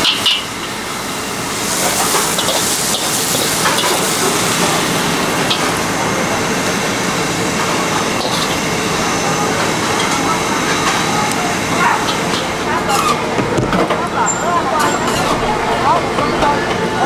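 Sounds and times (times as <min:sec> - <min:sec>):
food sizzling in a wok: 0:00.0 - 0:13.4
crowd chatter: 0:00.7 - 0:17.0.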